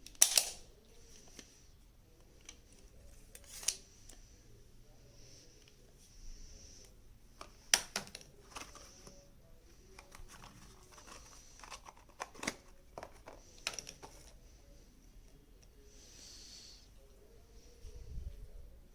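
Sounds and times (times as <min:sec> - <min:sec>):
packaging rustling: 0:09.9 - 0:14.4.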